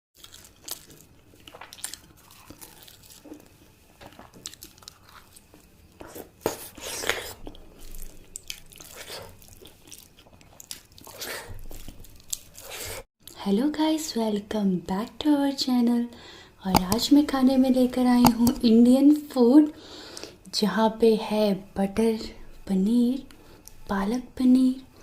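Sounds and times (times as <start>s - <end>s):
chewing and biting food: 0.2s - 13.0s.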